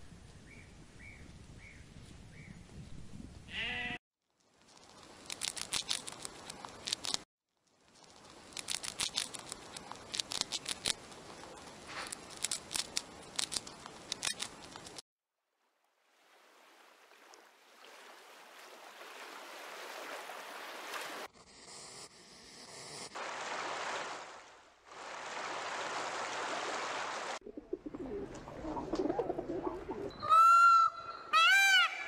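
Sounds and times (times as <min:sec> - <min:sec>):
sheep bleating: 0:03.5 - 0:04.0
hamster chewing: 0:05.3 - 0:07.2, 0:08.5 - 0:15.0.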